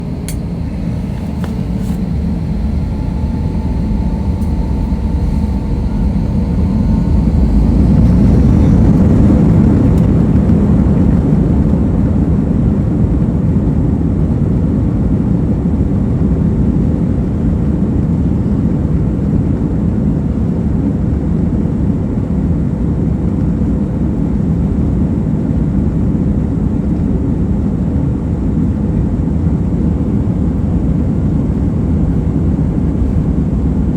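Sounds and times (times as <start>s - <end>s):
jet engines rumbling on takeoff: 0.0s - 22.2s
faint engine whine: 0.0s - 33.9s.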